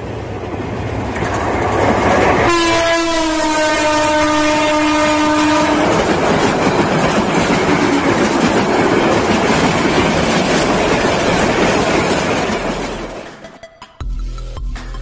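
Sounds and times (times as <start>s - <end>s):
train wheels clattering on rails: 0.0s - 13.7s
locomotive horn blast: 2.4s - 6.0s.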